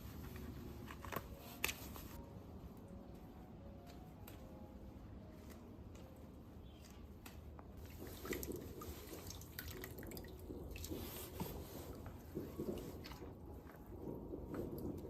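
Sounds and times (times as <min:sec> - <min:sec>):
small water drips: 0:07.8 - 0:15.0
water splashing in a basin: 0:07.8 - 0:15.0.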